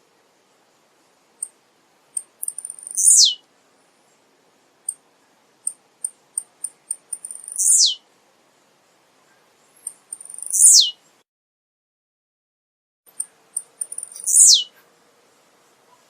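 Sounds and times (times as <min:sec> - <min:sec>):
bird singing: 0:02.2 - 0:03.4, 0:06.0 - 0:08.0, 0:09.6 - 0:11.2, 0:13.1 - 0:14.8.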